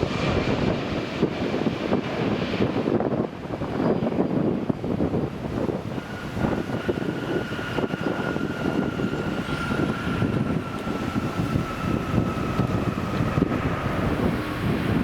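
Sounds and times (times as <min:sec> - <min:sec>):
gusty rushing noise: 0:00.0 - 0:15.0
jet engines whining: 0:00.0 - 0:15.0.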